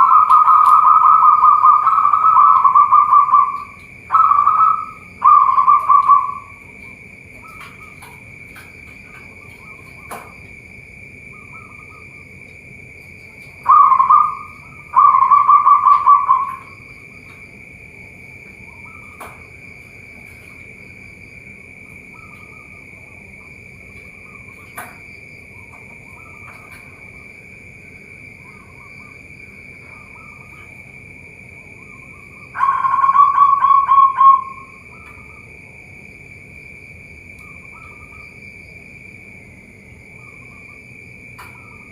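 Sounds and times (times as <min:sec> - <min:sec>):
high-pitched drone: 0:00.0 - 0:06.7, 0:13.6 - 0:17.0, 0:31.7 - 0:35.4
doves cooing: 0:00.0 - 0:36.0, 0:37.4 - 0:38.5.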